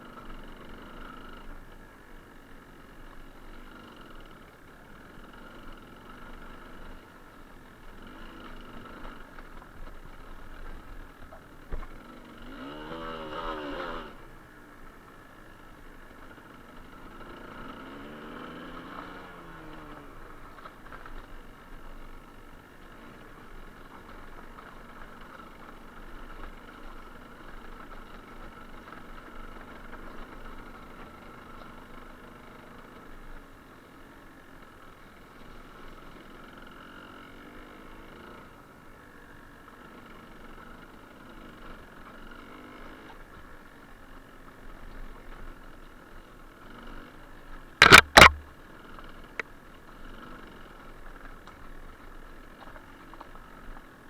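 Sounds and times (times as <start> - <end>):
motorcycle engine running: 0.0 - 54.0
sharp knock: 47.8 - 48.5.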